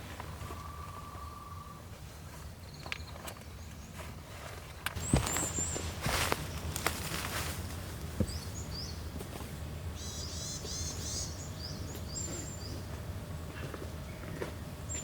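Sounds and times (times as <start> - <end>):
small birds chirping: 0.0 - 15.0
rustling: 3.2 - 8.4.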